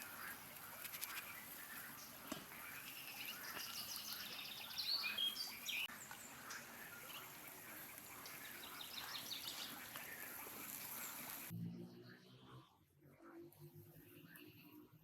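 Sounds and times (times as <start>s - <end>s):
faint outdoor hiss: 0.0s - 11.5s
small birds chirping: 0.0s - 12.7s.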